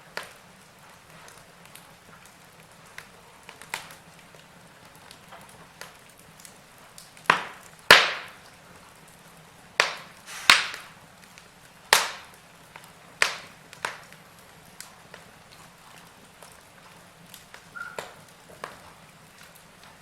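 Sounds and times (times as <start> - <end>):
fire crackling: 0.0 - 20.0
logs popping and snapping: 5.1 - 8.6, 9.8 - 20.0.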